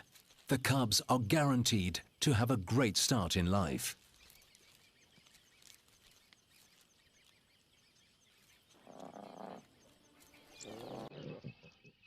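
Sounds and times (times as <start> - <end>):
faint high-pitched chirping: 3.2 - 12.0.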